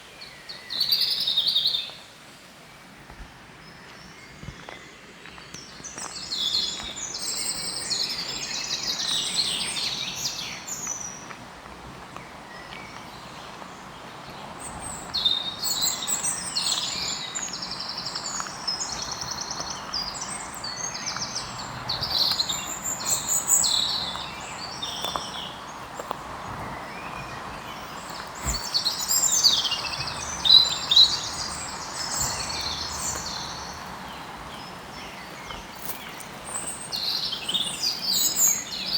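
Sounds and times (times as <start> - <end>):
songbirds warbling: 12.2 - 38.9.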